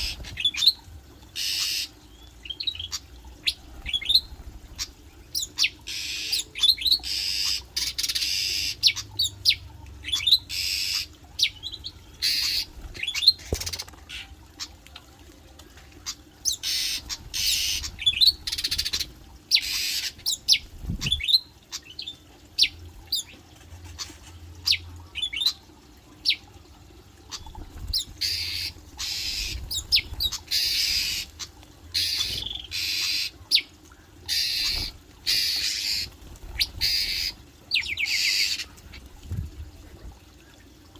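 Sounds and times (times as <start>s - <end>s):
birds squawking harshly: 0.0s - 0.7s, 1.4s - 2.0s, 12.2s - 14.2s, 16.5s - 21.2s, 27.3s - 33.7s, 34.3s - 38.8s.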